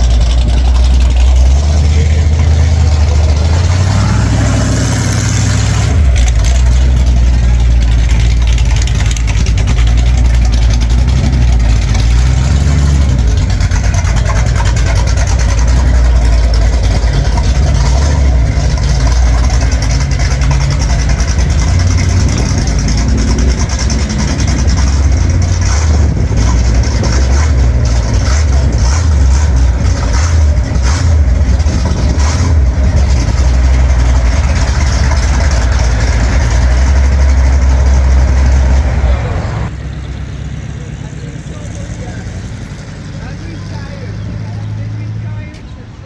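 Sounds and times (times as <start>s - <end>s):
car engine idling: 0.0s - 46.0s
voices in background: 38.8s - 46.0s.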